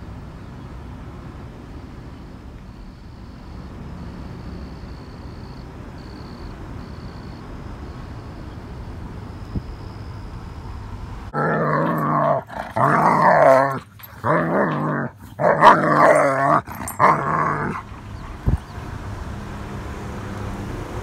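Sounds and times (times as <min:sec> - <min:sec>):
low car hum: 0:00.0 - 0:21.0
dog growl-howling: 0:11.4 - 0:18.0.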